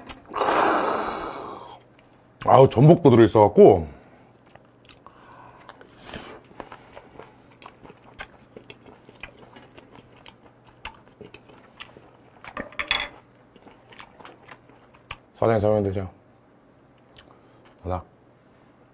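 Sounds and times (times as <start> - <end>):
close-up chewing with mouth clicks: 4.3 - 12.6, 13.2 - 15.3, 17.0 - 17.8.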